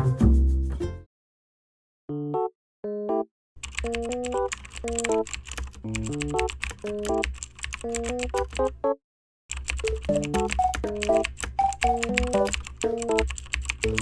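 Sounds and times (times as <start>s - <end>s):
keyboard typing clicks: 3.6s - 14.0s
bouncy tune with bass: 10.1s - 13.2s.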